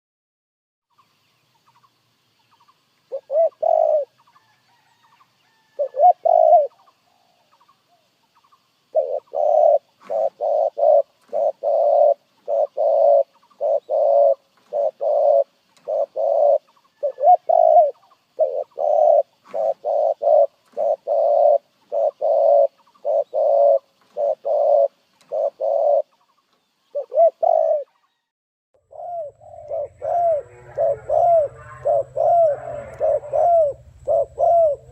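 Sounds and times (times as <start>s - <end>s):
dove cooing: 3.1s - 4.2s, 5.6s - 6.8s, 8.9s - 26.2s, 26.9s - 27.9s, 28.8s - 34.9s.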